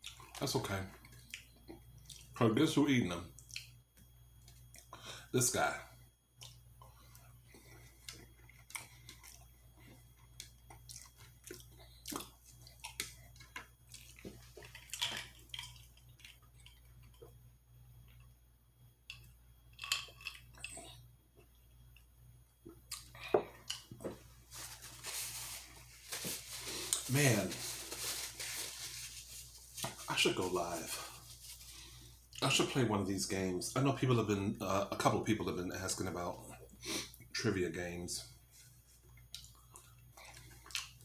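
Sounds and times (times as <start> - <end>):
close chewing with wet mouth clicks: 10.1 - 17.3.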